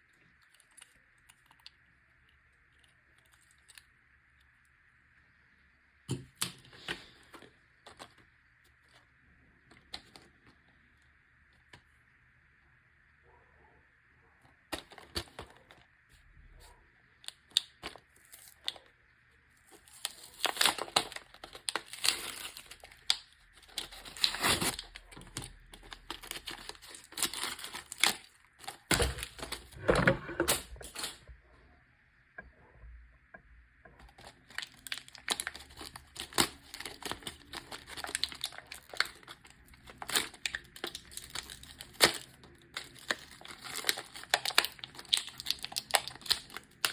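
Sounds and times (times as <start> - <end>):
packaging crinkling and tearing: 6.4 - 10.6, 14.7 - 15.9, 17.2 - 18.9, 19.6 - 29.8, 34.0 - 46.9.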